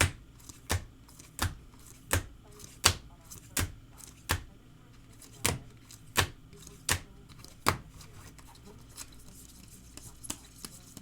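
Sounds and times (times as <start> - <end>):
cards tapped down on a table: 0.0 - 4.5, 5.4 - 7.9.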